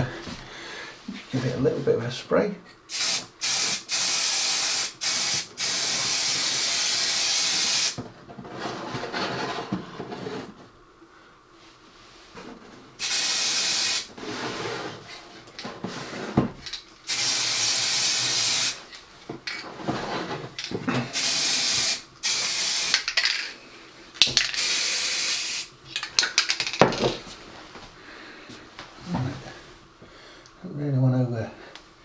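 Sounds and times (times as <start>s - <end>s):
aerosol can spraying: 2.9s - 8.0s, 13.0s - 14.1s, 17.1s - 18.8s, 21.1s - 23.4s, 24.3s - 25.7s.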